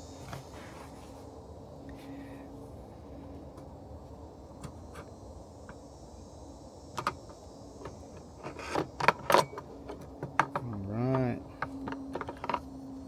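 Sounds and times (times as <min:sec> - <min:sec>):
low background hum: 0:00.0 - 0:13.0
car parts clicking by hand: 0:06.9 - 0:13.0.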